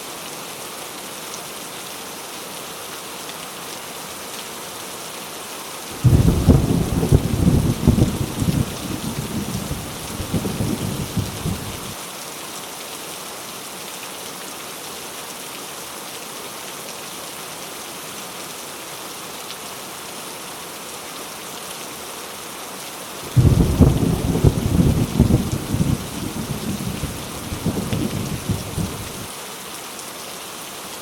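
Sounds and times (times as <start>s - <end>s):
heavy rain falling: 0.0s - 31.0s
low rumble of thunder: 6.0s - 12.0s, 23.3s - 29.3s.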